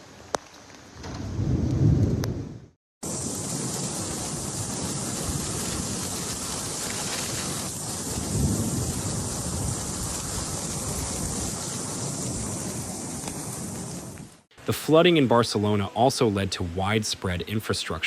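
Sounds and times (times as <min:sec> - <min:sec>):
wind buffeting microphone: 0:01.0 - 0:14.4
floodwater rushing: 0:03.1 - 0:13.9.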